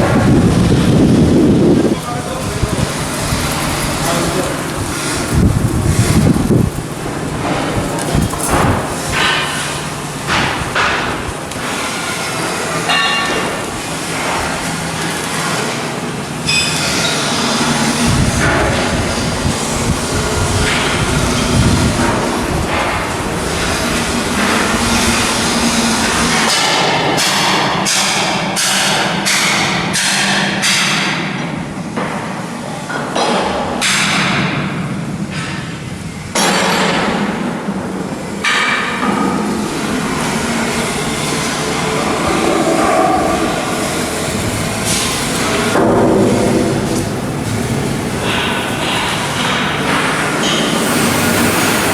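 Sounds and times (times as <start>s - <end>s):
metallic rumbling and clanking: 0.0s - 23.0s, 39.6s - 51.9s
loud sharp noisy bursts: 0.0s - 27.0s, 38.4s - 51.9s
steady low hum: 39.5s - 51.9s
metallic squeal: 42.6s - 51.9s.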